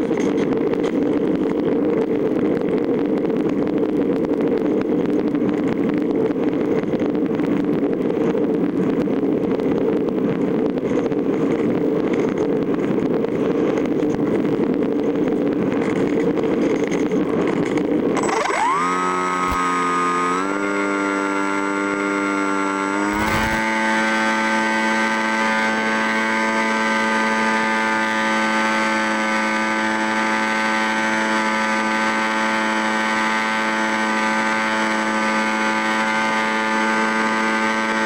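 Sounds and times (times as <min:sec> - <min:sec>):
moving vehicle noise: 0:00.0 - 0:38.0
wind roar and crackle: 0:00.0 - 0:38.0
rising tone into steady hum: 0:17.5 - 0:38.0.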